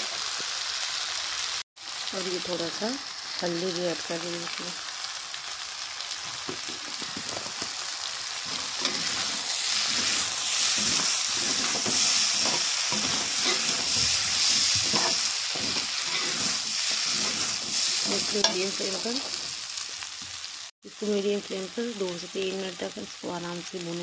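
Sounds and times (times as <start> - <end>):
rice and vegetables sizzling: 0.0 - 24.0
metal spoon stirring and scraping: 8.4 - 19.6.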